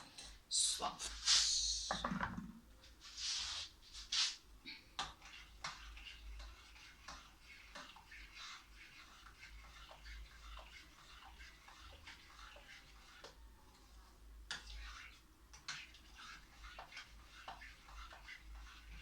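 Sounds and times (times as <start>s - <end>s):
spoon stirring in a pot: 4.7s - 19.0s.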